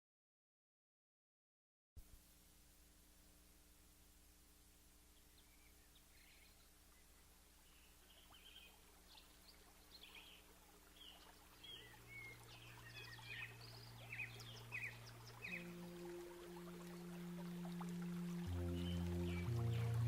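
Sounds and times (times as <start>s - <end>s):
low steady hum: 2.0s - 20.0s
small birds chirping: 5.0s - 20.0s.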